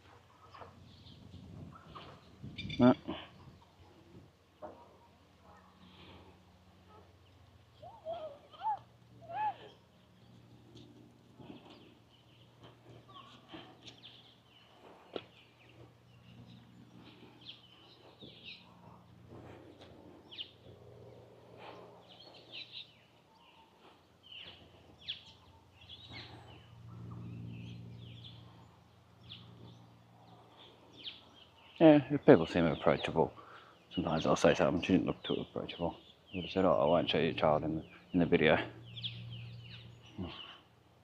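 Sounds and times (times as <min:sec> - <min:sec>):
low steady hum: 0:00.0 - 0:31.7
birds chirping: 0:00.0 - 0:41.0.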